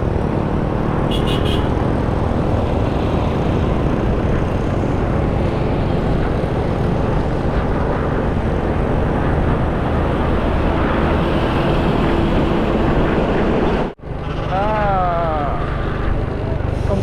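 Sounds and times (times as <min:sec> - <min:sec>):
motorcycle engine: 0:00.0 - 0:17.0
wind rushing: 0:01.8 - 0:14.5.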